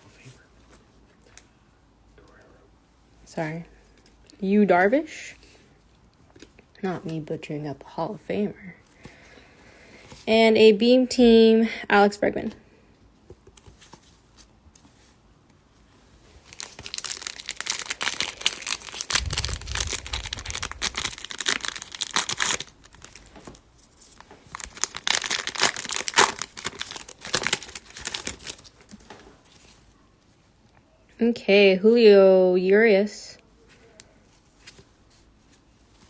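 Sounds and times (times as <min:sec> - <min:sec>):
foil wrapper crinkling and tearing: 0:16.2 - 0:29.0
low handling rumble: 0:17.2 - 0:23.2.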